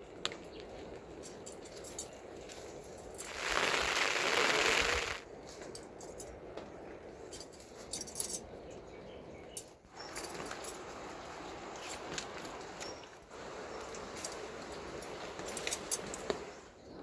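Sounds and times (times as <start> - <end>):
loud hiss: 3.2 - 5.2, 10.1 - 16.7.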